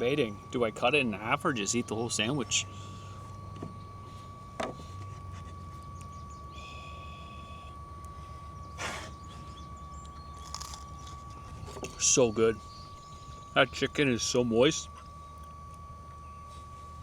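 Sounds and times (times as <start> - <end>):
small fan humming and whining: 0.0 - 17.0
brief buzz: 2.6 - 13.7.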